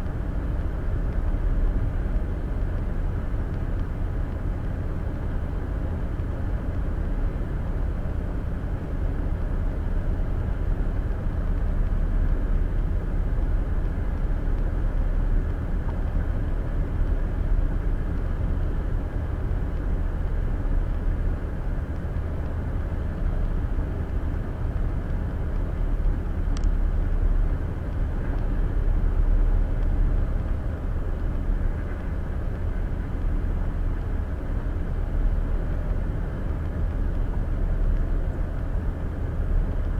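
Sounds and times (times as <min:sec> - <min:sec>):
brief click: 0:26.6 - 0:26.8.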